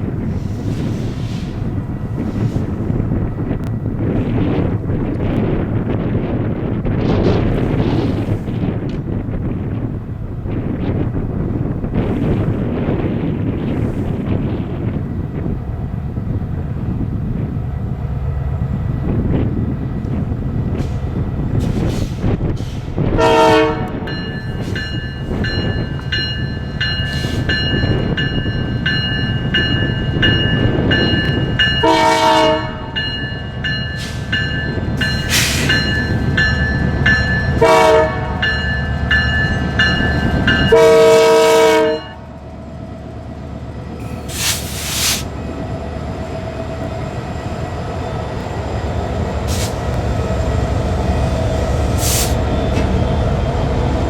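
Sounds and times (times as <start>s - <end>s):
locomotive engine and rolling train: 0.0s - 54.0s
train horn blasts: 23.2s - 24.2s, 31.8s - 33.1s, 37.6s - 38.7s, 40.6s - 42.3s.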